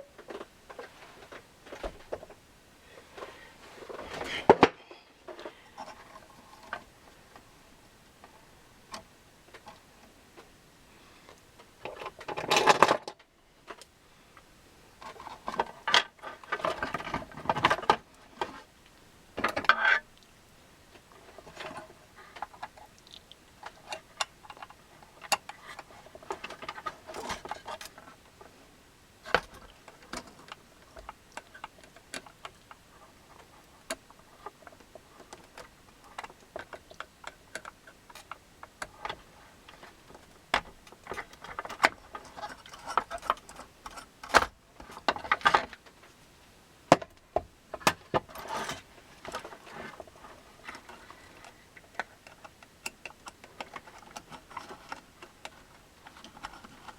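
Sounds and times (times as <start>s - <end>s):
small tools clicking and scraping: 29.3s - 45.9s, 48.2s - 56.9s.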